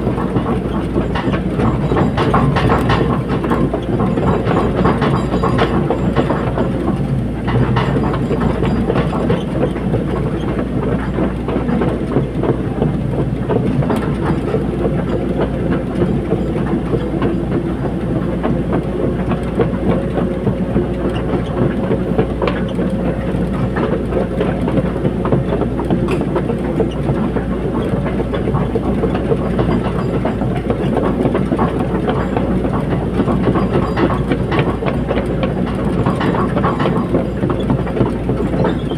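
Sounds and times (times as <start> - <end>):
excavator diesel engine: 0.0 - 38.9
metallic clatter and rattling: 1.0 - 9.7.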